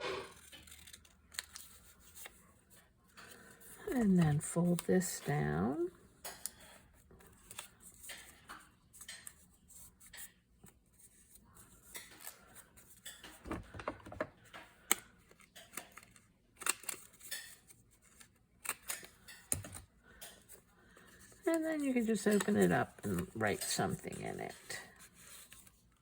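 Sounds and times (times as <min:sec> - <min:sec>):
paper rustling: 0:21.0 - 0:26.0.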